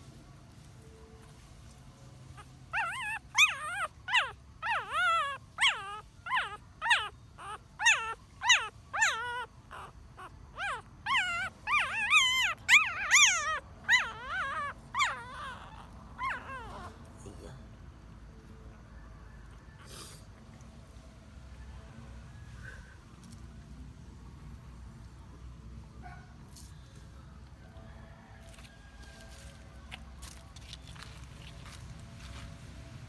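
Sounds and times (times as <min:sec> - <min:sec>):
puppy whimpering squeals: 0:02.4 - 0:17.1.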